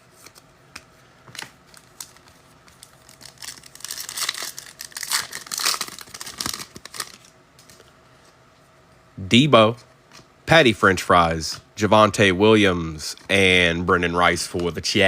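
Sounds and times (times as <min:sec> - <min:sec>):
card pack wrapper crinkling: 0:01.3 - 0:07.9.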